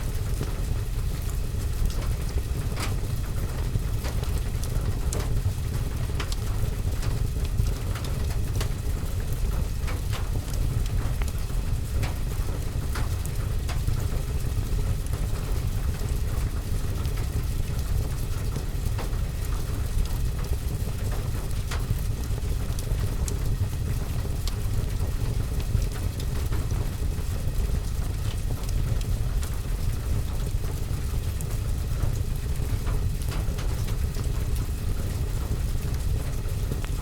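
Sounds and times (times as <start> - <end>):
rain on window and roof: 0.0 - 37.0.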